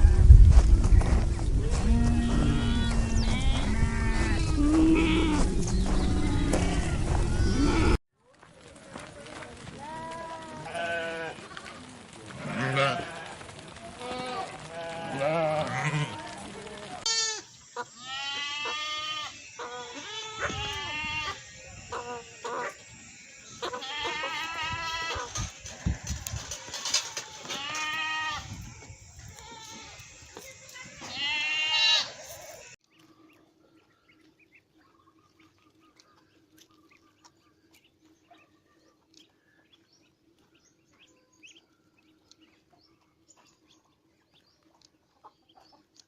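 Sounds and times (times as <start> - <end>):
flock of livestock bleating: 1.6 - 8.0, 9.8 - 11.6, 12.3 - 32.8.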